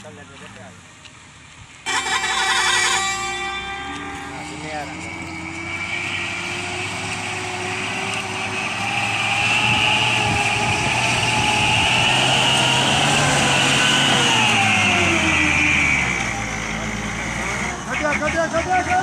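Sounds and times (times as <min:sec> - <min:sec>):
truck engine running: 0:00.8 - 0:19.0.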